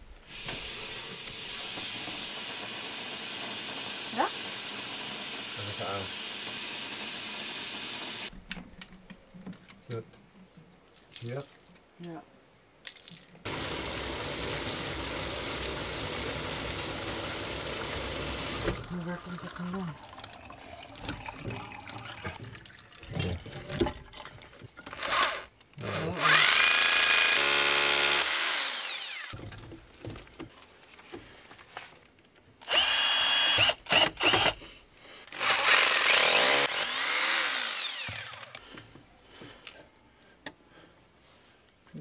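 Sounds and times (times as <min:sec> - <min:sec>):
electric drill whining: 0:13.5 - 0:18.8, 0:25.0 - 0:29.4, 0:32.6 - 0:34.6, 0:35.3 - 0:38.6.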